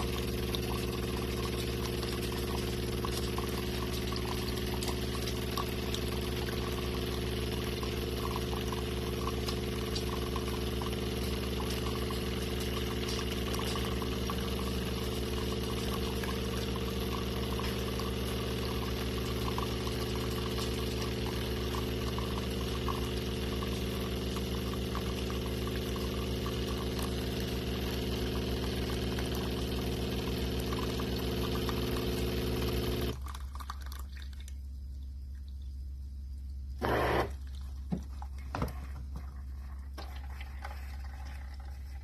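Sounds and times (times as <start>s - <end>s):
coffee machine brewing hum: 0.0s - 42.0s
faint low hum: 33.2s - 42.0s.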